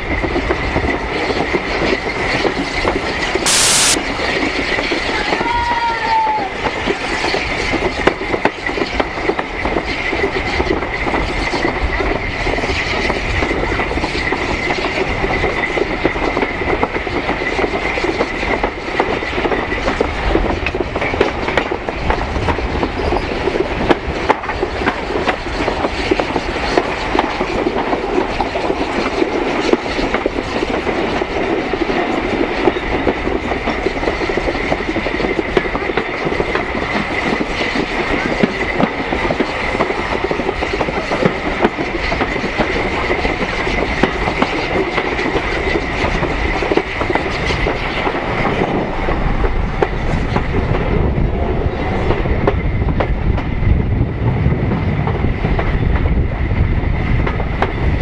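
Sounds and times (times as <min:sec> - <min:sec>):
train running noise: 0:00.0 - 0:58.0
thin high whine: 0:03.5 - 0:04.0
wheels clicking over rail joints: 0:04.2 - 0:53.6.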